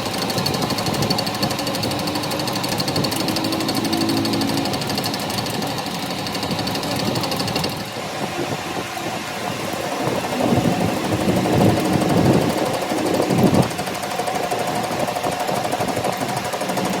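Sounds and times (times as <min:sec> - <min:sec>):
power tool rattling: 0:00.0 - 0:17.0.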